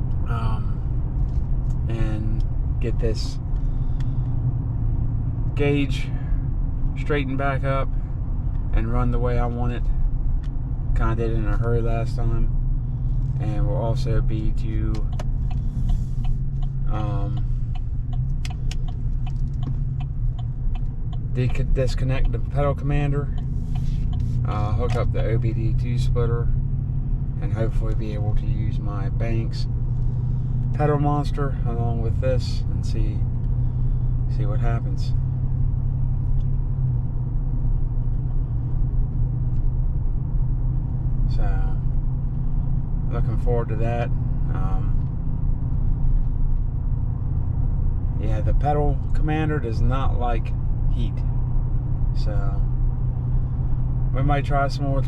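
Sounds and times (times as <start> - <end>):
engine and road drone: 0.0 - 55.0
turn signal ticking: 14.2 - 25.8, 44.1 - 49.2.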